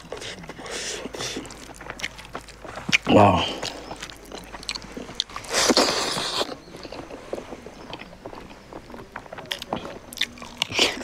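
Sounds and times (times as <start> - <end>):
mouth smacks and clicks: 0.0 - 7.2
person chewing food: 0.0 - 11.0.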